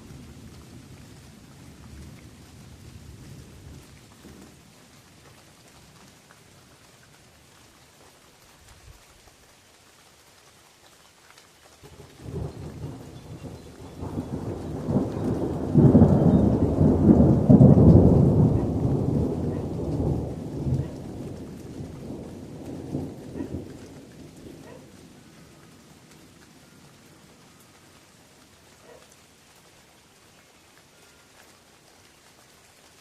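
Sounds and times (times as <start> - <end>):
rain falling on leaves: 0.0 - 33.0
thunder rumbling: 11.8 - 25.6.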